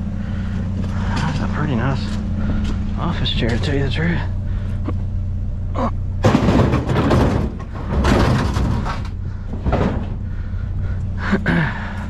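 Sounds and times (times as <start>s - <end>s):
vehicle engine idling: 0.0s - 12.0s
metal scraping and clattering: 6.2s - 10.4s.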